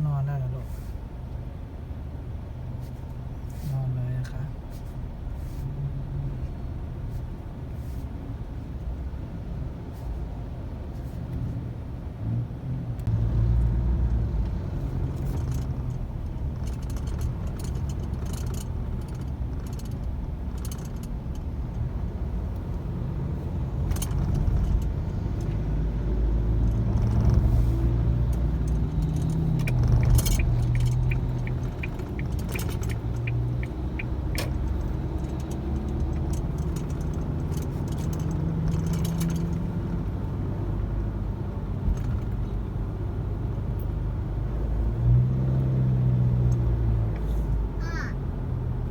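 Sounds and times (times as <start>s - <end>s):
car engine and road rumble: 0.0s - 48.9s
small clicks and rattles: 15.1s - 21.8s, 28.2s - 40.0s
quick even ticks: 28.3s - 37.2s.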